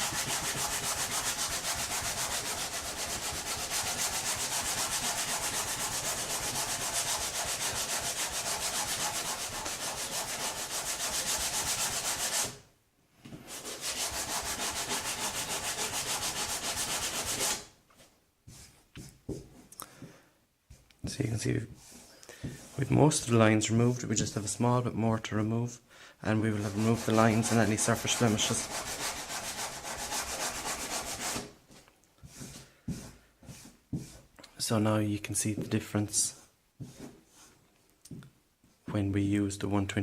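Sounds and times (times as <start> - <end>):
sandpaper rubbing on wood: 0.0 - 12.6, 13.5 - 17.7, 26.4 - 31.5.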